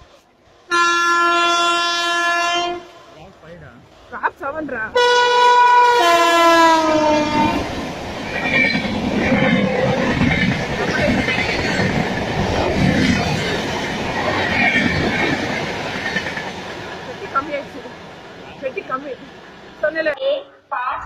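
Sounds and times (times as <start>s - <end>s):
locomotive horn: 0.7s - 3.0s, 4.9s - 7.7s
wheels clattering on rails: 7.6s - 19.3s.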